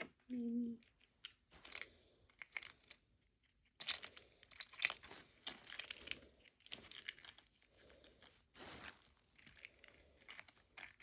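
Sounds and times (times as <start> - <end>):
plastic toy food clicking: 3.7 - 5.0.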